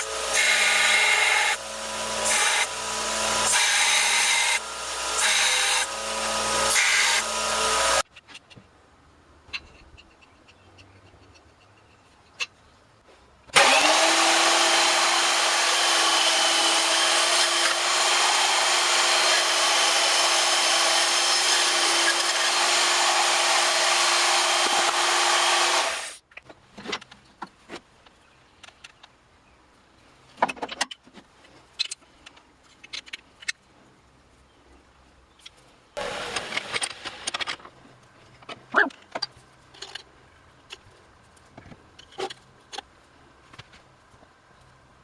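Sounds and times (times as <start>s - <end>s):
power tool whining: 0.0s - 8.0s, 13.5s - 26.2s, 36.0s - 37.4s.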